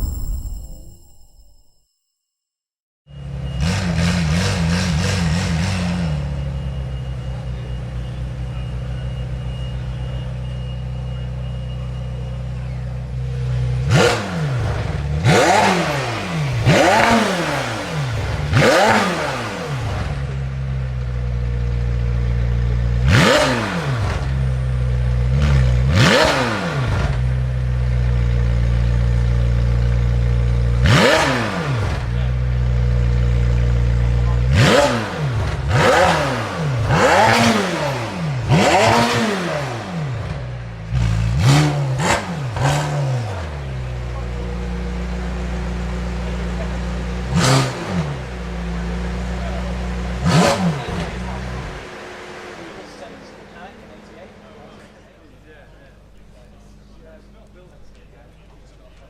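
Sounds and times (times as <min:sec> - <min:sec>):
engine revving sharply: 0:13.7 - 0:20.4, 0:23.0 - 0:27.4, 0:30.8 - 0:54.8
car engine idling: 0:48.1 - 0:58.9.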